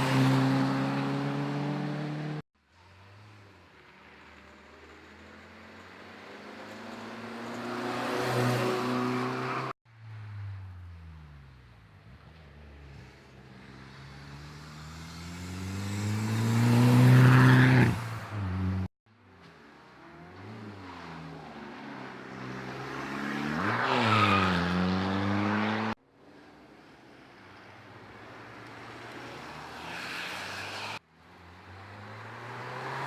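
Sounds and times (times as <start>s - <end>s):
cars accelerating hard: 0.0s - 2.4s, 6.8s - 9.8s, 14.0s - 18.9s, 20.0s - 26.0s, 31.6s - 33.0s.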